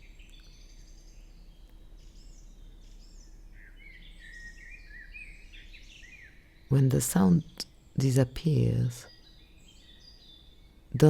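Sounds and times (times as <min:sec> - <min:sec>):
small birds twittering: 0:00.0 - 0:11.0.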